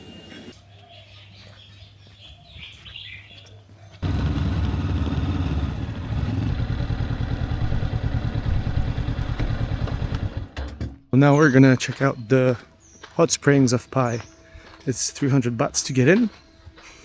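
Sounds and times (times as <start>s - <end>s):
birds chirping faintly: 0.0s - 4.1s, 11.2s - 17.0s
motorbike engine running: 4.0s - 10.6s.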